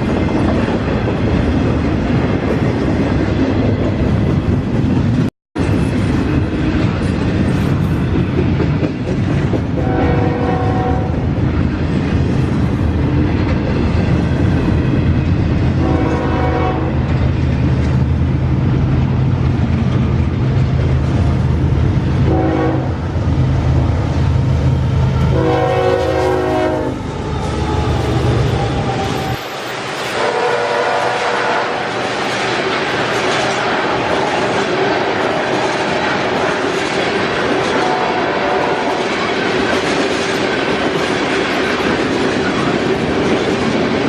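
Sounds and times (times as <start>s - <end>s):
passing train rumble: 0.0s - 44.0s
locomotive horn blasts: 9.8s - 11.1s, 15.8s - 17.0s, 22.3s - 23.0s, 25.2s - 27.0s, 30.1s - 31.9s, 37.7s - 39.0s.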